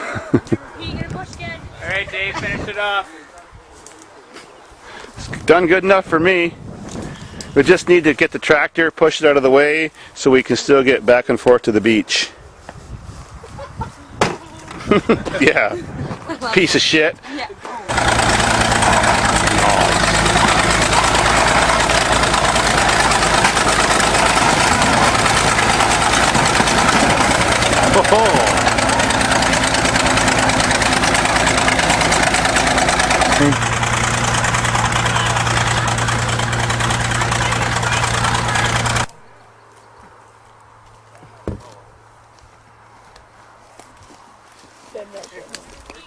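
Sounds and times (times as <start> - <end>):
faint outdoor background: 0.0 - 46.0
diesel bulldozer engine idling: 17.9 - 39.3.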